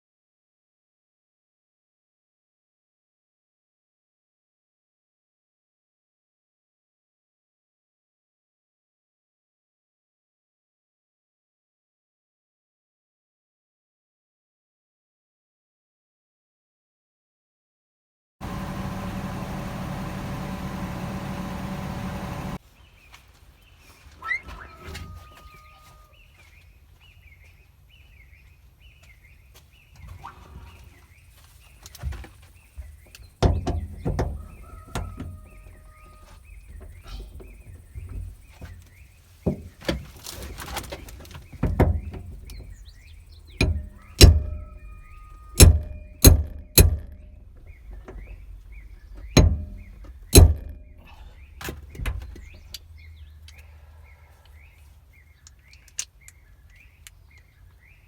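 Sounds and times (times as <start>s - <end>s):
birds chirping: 18.9s - 58.0s
knocks and thuds: 32.0s - 35.6s, 36.6s - 52.7s.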